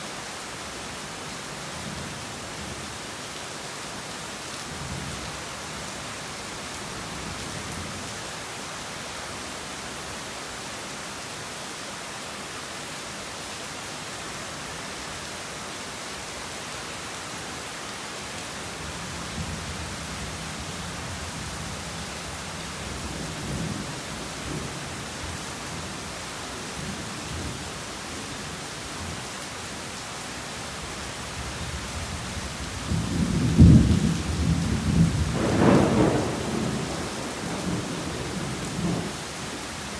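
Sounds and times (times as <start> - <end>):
heavy rain: 0.0 - 39.9
loud peal of thunder: 32.9 - 39.2
thunder rumbling: 32.9 - 39.5.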